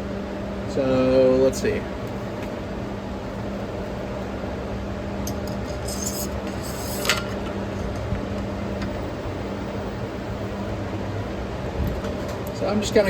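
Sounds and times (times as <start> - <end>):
steady background hum: 0.0 - 13.0
metal parts scraping and clicking: 5.3 - 7.5.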